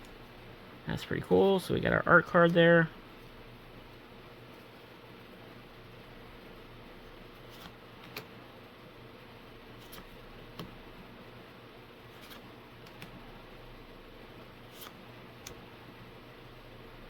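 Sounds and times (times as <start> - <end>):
faint room hum: 0.0 - 17.0
trading cards clicking and snapping: 7.4 - 8.3, 9.8 - 10.8, 12.2 - 13.2, 14.7 - 15.6.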